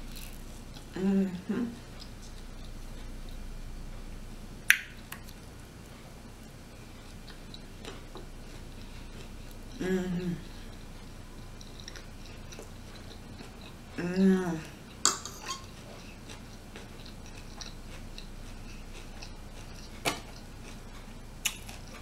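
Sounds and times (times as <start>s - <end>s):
person humming: 0.9s - 1.8s, 9.8s - 10.7s, 14.0s - 14.7s
cutlery clicking on plate: 15.0s - 15.7s.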